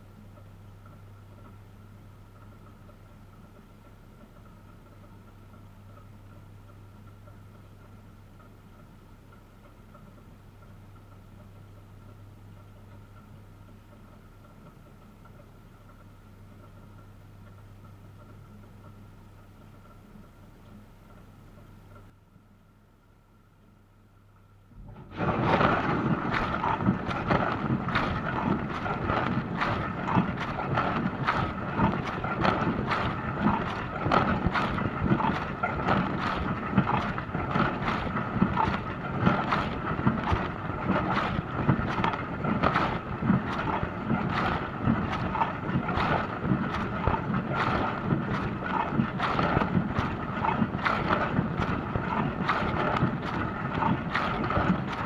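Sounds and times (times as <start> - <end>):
pump humming: 24.8 - 55.0
water spraying inside dishwasher: 24.8 - 55.0.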